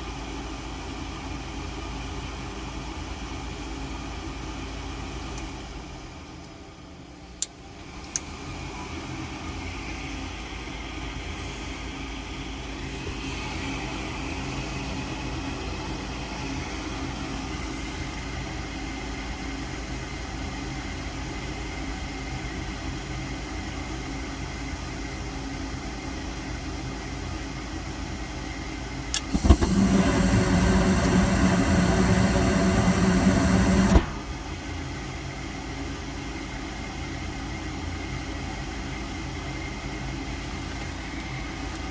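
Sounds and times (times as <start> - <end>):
ignition click: 7.4 - 8.3, 29.1 - 34.6
furnace motor hum: 7.4 - 41.9
burner rushing with deep hum: 29.2 - 34.8.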